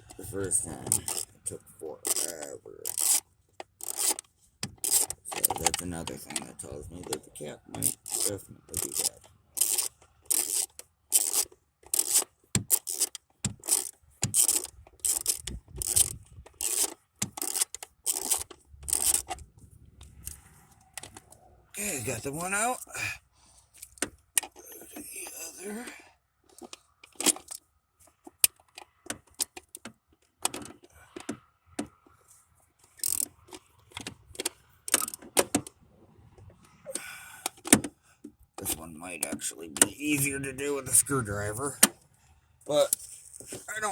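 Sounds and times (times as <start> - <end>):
short scraping rasps: 0.1 - 6.5, 7.8 - 19.4
socket ratchet clicking: 2.1 - 5.8, 7.8 - 19.4, 33.0 - 35.6.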